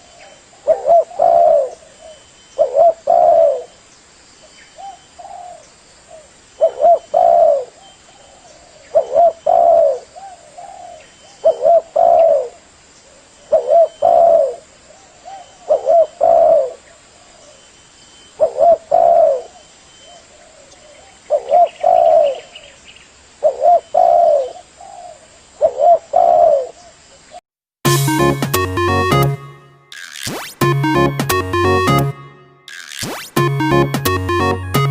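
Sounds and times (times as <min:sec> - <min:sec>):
dove cooing: 0:00.0 - 0:03.7, 0:04.8 - 0:12.6, 0:13.5 - 0:16.8, 0:18.4 - 0:22.6, 0:23.4 - 0:26.9
music: 0:27.8 - 0:34.9.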